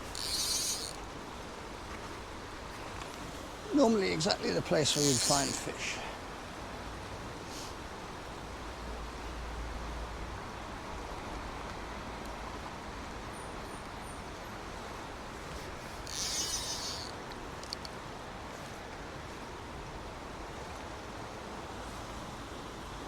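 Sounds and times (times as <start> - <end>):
faint clicks: 0.0 - 1.1, 15.5 - 18.0
high buzzing rattle: 0.0 - 1.5, 4.3 - 5.8, 15.5 - 17.9
small stream rushing: 0.0 - 23.0.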